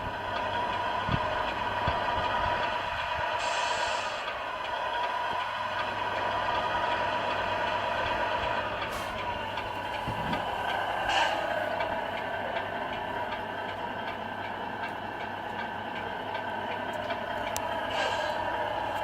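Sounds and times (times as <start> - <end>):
model truck mechanical hum: 0.0 - 19.0
faint regular ticking: 11.5 - 19.0.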